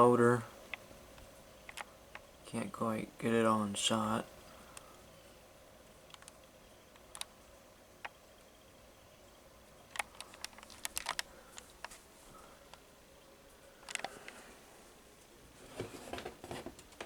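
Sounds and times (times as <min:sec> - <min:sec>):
handling clicks and knocks: 0:09.9 - 0:12.0.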